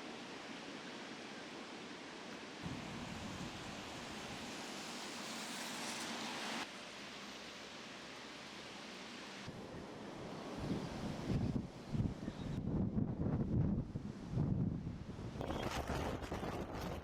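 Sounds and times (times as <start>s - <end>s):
strong gusting wind: 9.5s - 17.0s.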